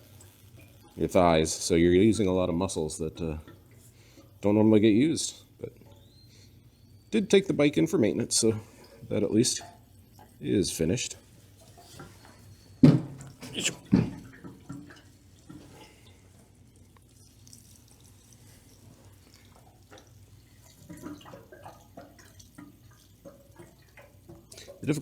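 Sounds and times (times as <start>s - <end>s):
fuel trickling into tank: 0.0s - 25.0s
sharp knocks on jerry can: 12.8s - 13.2s.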